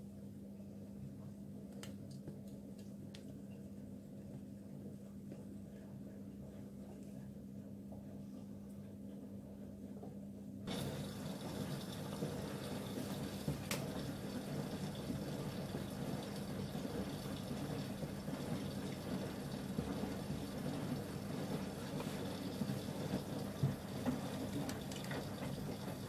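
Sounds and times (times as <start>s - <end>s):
washing machine low hum: 0.0s - 26.0s
water flowing in with hiss: 10.7s - 26.0s.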